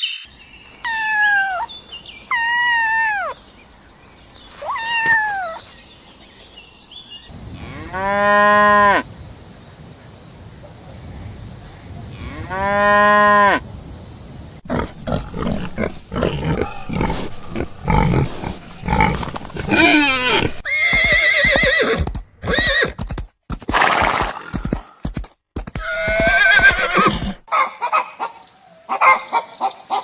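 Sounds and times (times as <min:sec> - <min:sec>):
horse neighing: 0:14.7 - 0:23.0, 0:25.8 - 0:27.5.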